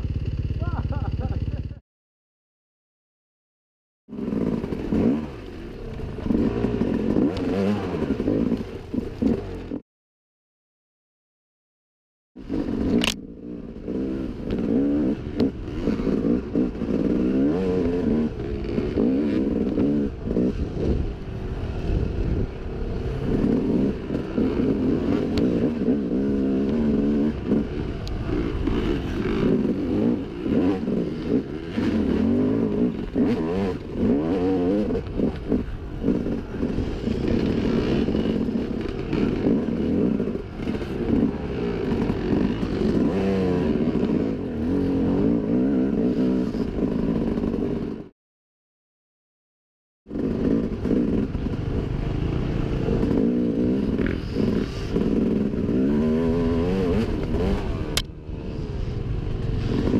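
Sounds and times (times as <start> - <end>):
dirt bike engine revving: 4.1 - 9.8, 12.4 - 48.1, 50.1 - 59.9.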